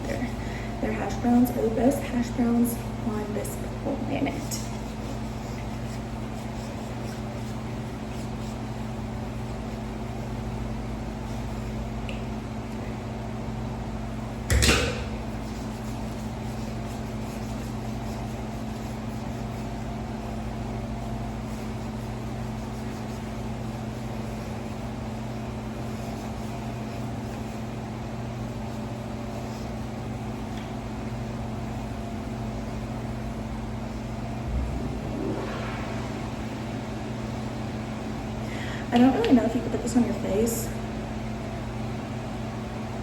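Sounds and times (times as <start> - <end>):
machine humming: 33.7 - 38.9.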